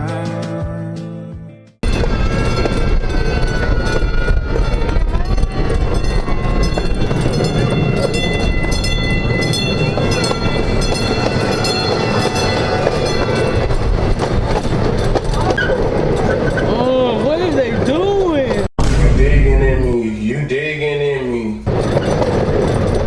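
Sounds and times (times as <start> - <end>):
high metallic squealing: 1.8 - 18.7, 21.7 - 23.0
wheels clattering on track: 1.8 - 18.7, 21.7 - 23.0.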